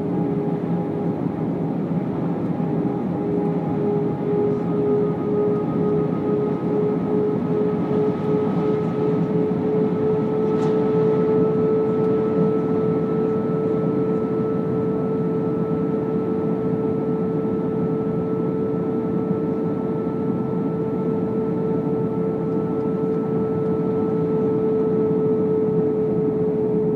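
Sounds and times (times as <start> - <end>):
engine and airflow rush: 0.0 - 16.5
jet engine whine: 0.0 - 26.9.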